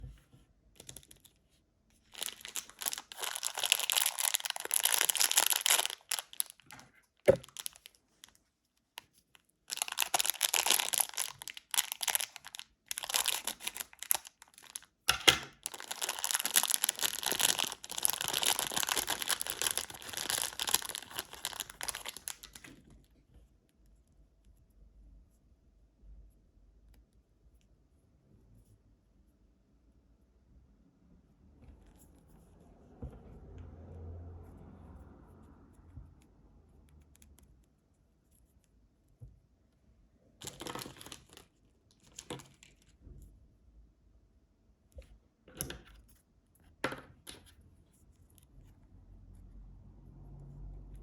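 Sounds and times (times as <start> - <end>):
candy wrappers crinkling and tearing: 2.0 - 8.4, 9.4 - 22.9, 40.4 - 42.9.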